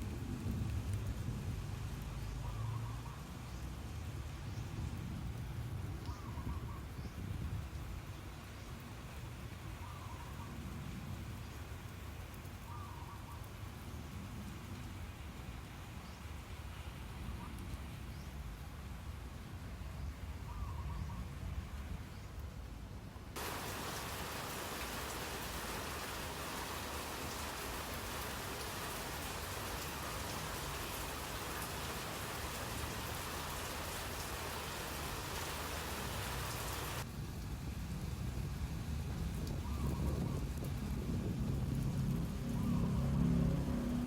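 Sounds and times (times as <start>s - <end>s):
hiss of water: 23.4s - 37.1s.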